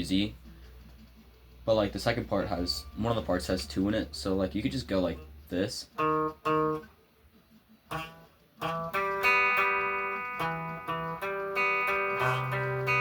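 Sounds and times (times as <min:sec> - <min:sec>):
guitar strumming chords: 0:04.9 - 0:07.0, 0:07.8 - 0:13.0.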